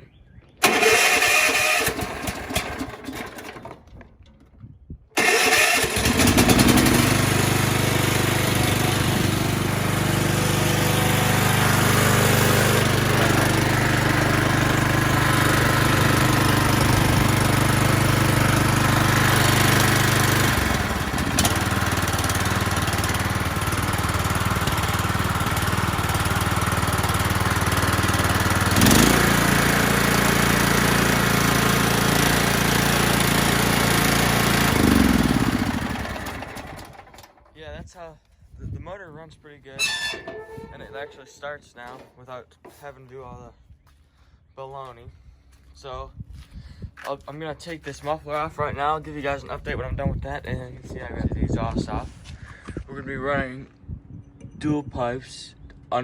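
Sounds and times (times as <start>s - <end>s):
electric starter cranking: 0.6s - 4.2s, 5.2s - 37.4s, 39.8s - 41.3s
lawn mower engine running: 0.6s - 4.4s, 5.2s - 37.5s, 39.8s - 41.3s.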